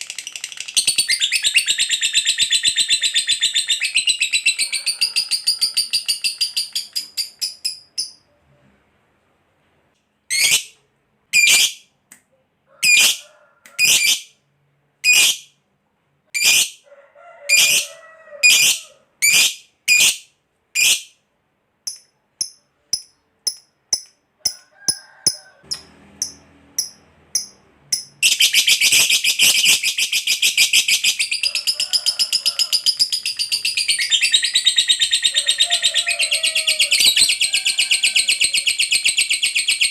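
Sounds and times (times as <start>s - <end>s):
bird chirping: 0.0s - 8.4s, 25.6s - 37.6s, 38.3s - 39.9s.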